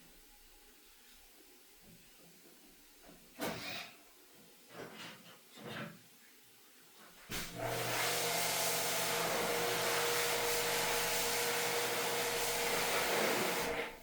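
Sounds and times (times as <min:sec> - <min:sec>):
cleaning machine hissing and humming: 0:07.3 - 0:14.0.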